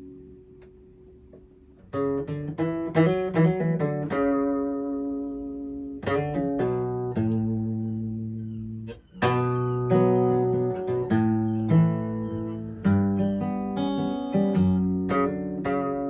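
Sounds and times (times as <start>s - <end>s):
acoustic guitar picked and strummed: 0.0s - 16.0s.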